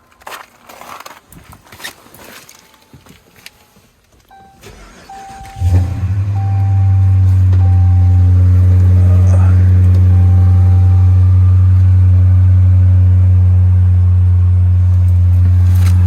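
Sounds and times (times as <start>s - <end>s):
dashboard chime beeping: 4.3s - 12.3s
car engine idling: 4.3s - 16.0s.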